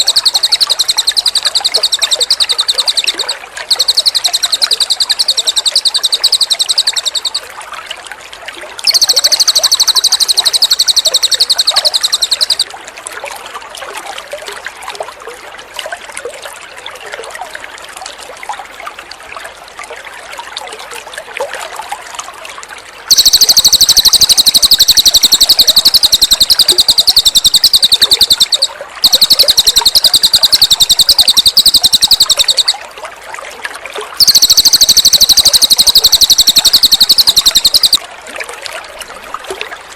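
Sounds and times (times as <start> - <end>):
bird singing rapid high trills: 0.0 - 7.4, 8.9 - 12.6, 23.1 - 32.8, 34.2 - 38.0
water trickling and splashing: 0.0 - 39.9.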